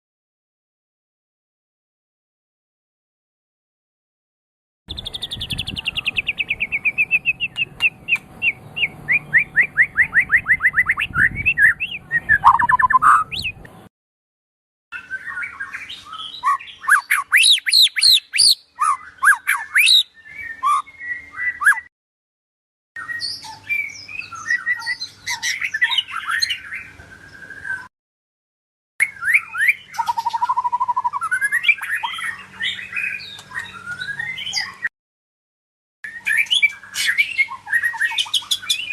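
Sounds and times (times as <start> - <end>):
bird singing whistled phrases: 4.9 - 13.6, 15.0 - 21.9, 23.0 - 27.9, 29.0 - 34.9, 36.1 - 38.9.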